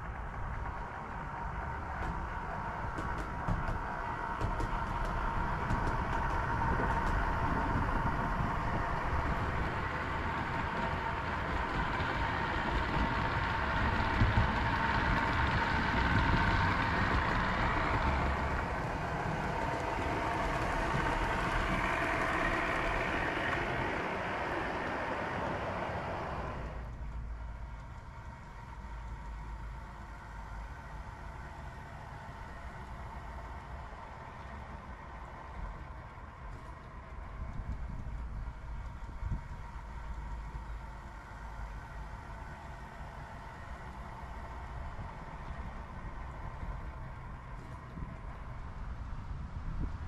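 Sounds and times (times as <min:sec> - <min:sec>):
train rumbling: 0:00.0 - 0:50.0
hiss with whining tone: 0:01.7 - 0:26.9.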